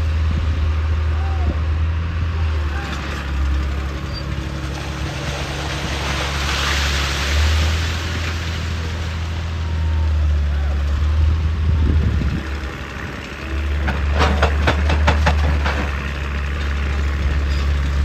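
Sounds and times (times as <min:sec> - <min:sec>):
excavator diesel engine running: 0:00.0 - 0:18.0
sharp knocks: 0:13.8 - 0:16.0.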